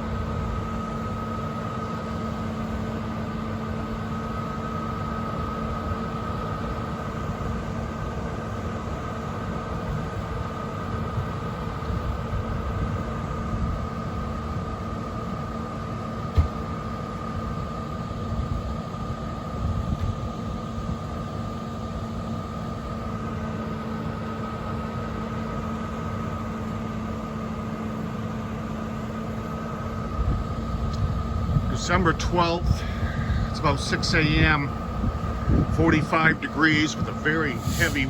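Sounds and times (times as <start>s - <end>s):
vehicle engines idling: 0.0s - 38.0s
low uneven rumble: 30.2s - 38.0s.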